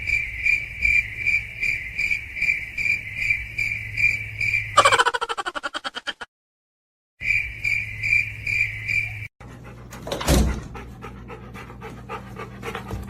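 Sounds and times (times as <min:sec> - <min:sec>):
high chirping trill: 0:04.4 - 0:06.1.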